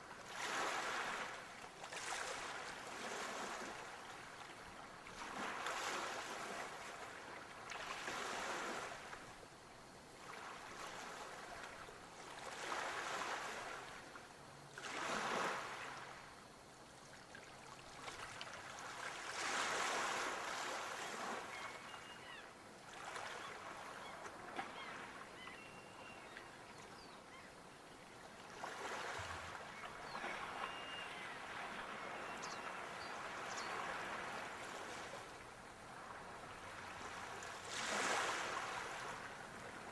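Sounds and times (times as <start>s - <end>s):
sea waves washing onto shore: 28.6s - 39.9s.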